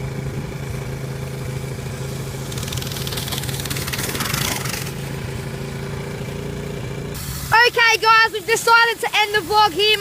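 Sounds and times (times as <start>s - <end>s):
small engine idling: 0.0s - 10.0s
loud rasping noise: 2.4s - 5.1s.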